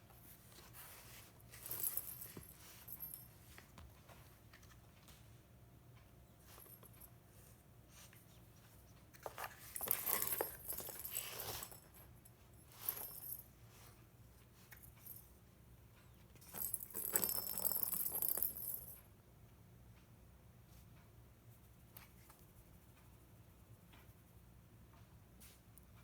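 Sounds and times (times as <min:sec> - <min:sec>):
cat toy jingling and rustling: 0:00.2 - 0:03.8, 0:09.4 - 0:15.3, 0:16.4 - 0:19.0.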